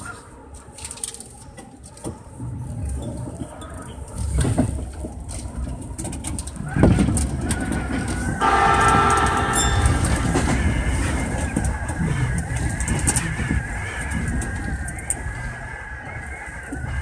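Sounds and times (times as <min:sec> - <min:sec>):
train wheel and rail rumble: 0:00.0 - 0:17.0
horn-like tone: 0:08.4 - 0:11.6.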